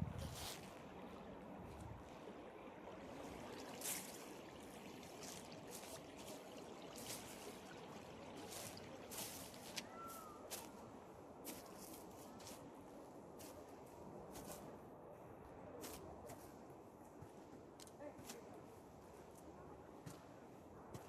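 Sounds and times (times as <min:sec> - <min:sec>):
faint flowing river water: 0:00.0 - 0:21.0
footsteps on forest trail: 0:00.2 - 0:00.8, 0:03.7 - 0:04.3, 0:08.3 - 0:10.9, 0:11.5 - 0:12.6.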